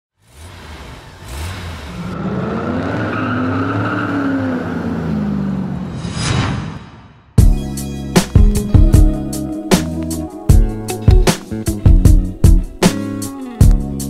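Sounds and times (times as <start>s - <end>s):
car engine revving: 0.2s - 6.0s
whoosh: 5.8s - 7.4s.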